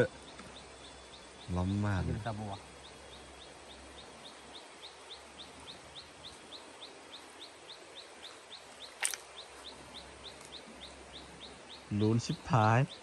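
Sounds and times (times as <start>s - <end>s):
bird chirping: 0.0s - 13.0s
sharp click or splash: 9.0s - 9.3s.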